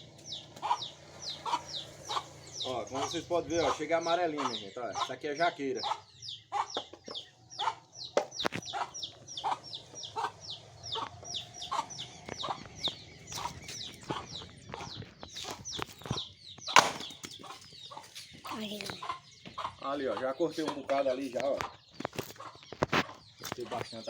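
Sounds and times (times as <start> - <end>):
chickens clucking and peeping: 0.0 - 24.0
sharp knocks: 16.7 - 17.3.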